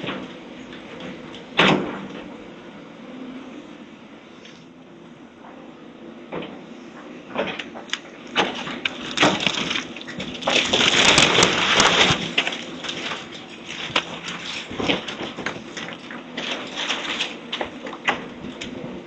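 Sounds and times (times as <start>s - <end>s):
low machine hum: 0.0s - 19.0s
wood and debris cracking and crashing: 7.7s - 18.9s
dense crunch: 8.9s - 15.3s.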